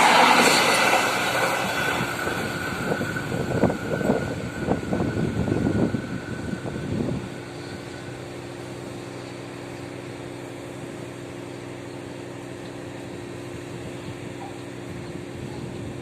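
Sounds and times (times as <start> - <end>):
rushing noise: 0.0 - 9.7
passenger train mechanical hum: 0.0 - 16.0.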